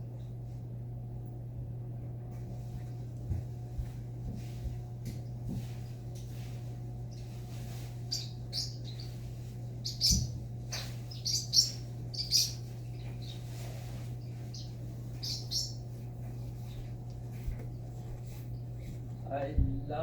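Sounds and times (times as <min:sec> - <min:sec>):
steady low hum: 0:00.0 - 0:20.0
parrot chirping and squeaking: 0:07.1 - 0:16.0.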